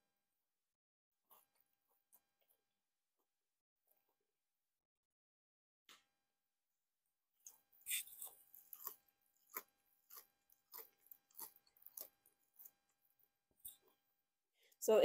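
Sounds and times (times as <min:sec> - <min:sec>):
crunchy chewing: 0:07.5 - 0:14.0.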